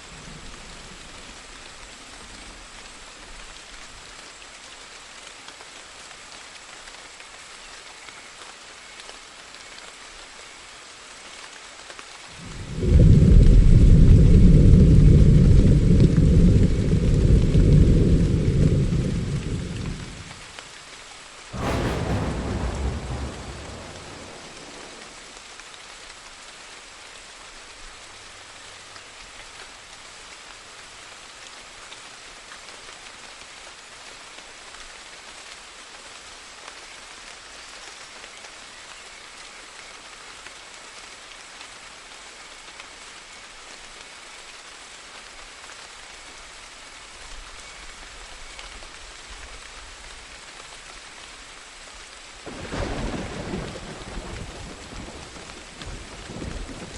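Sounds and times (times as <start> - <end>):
low rumble of thunder: 0.0 - 3.9, 12.3 - 20.6, 21.6 - 25.4, 52.5 - 56.9
steady rain falling: 0.0 - 56.9
loud thunderclap: 12.4 - 20.3, 21.6 - 25.3, 52.5 - 56.9.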